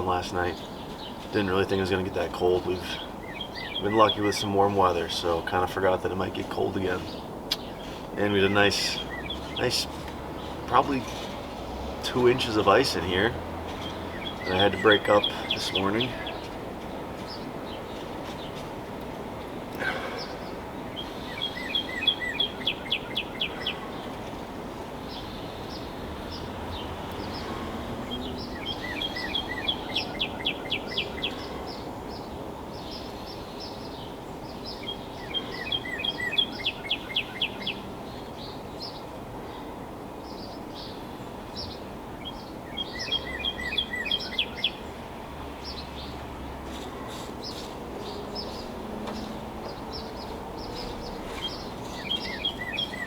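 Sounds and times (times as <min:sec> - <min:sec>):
songbird singing high notes: 0:00.0 - 0:11.2, 0:12.0 - 0:16.4, 0:20.2 - 0:23.9, 0:41.6 - 0:44.8, 0:47.4 - 0:53.0
steady background hiss: 0:00.0 - 0:53.0.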